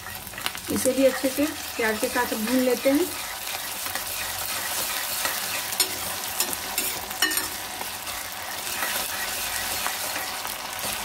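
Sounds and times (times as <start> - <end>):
onions sizzling in hot oil: 0.0 - 11.0
steel ladle clinking against pan: 5.2 - 7.6.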